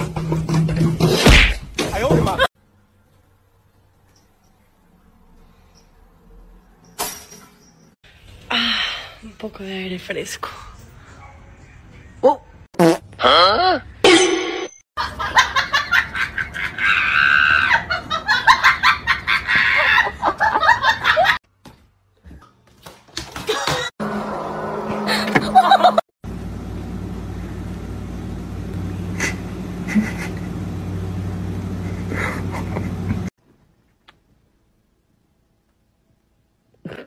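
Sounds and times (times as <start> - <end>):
person laughing: 15.0 - 21.4, 25.1 - 26.0, 29.1 - 30.7, 31.8 - 33.3
steady low hum: 26.2 - 33.3.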